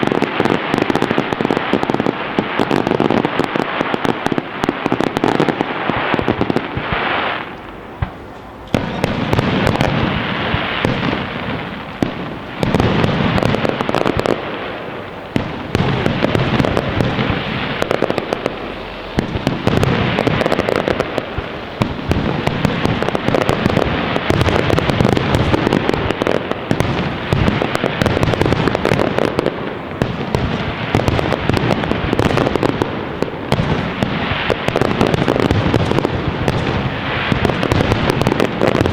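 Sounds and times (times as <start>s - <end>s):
fireworks bursting with crackling: 0.0s - 38.9s.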